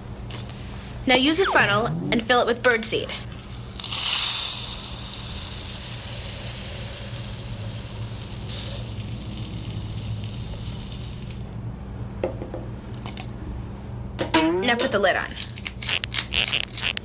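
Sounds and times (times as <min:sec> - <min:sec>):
seeds pouring into plastic bottle: 0:03.8 - 0:11.4.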